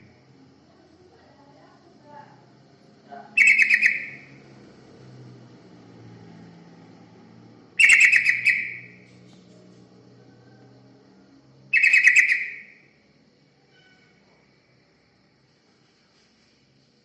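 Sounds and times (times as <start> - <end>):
bulbul song: 3.3 - 4.5, 7.8 - 9.1, 11.6 - 13.0.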